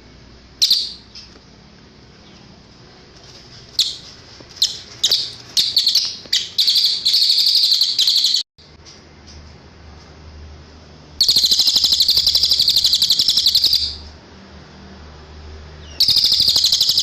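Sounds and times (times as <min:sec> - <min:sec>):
songbird chirping and trilling: 0:00.6 - 0:01.4, 0:03.8 - 0:08.5, 0:11.2 - 0:14.1, 0:15.7 - 0:17.0.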